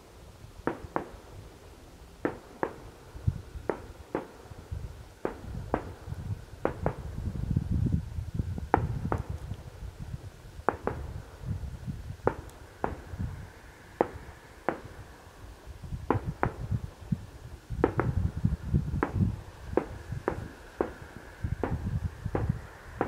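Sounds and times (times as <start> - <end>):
distant fireworks bangs: 0.6 - 1.4, 2.2 - 7.2, 8.6 - 9.5, 10.6 - 11.4, 12.2 - 15.2, 16.0 - 17.0, 17.8 - 23.0.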